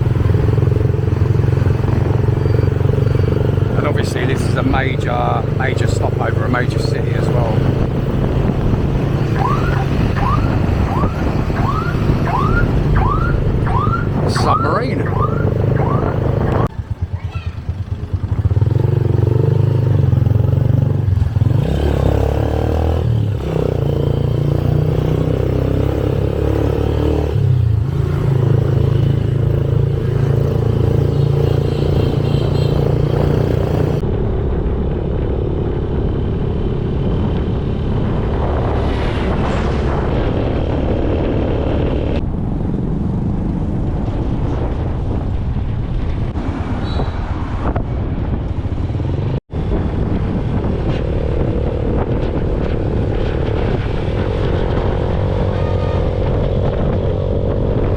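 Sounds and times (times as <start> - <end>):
motorcycle engine running: 0.0 - 26.7, 27.7 - 38.4
wind and road noise: 0.0 - 57.9.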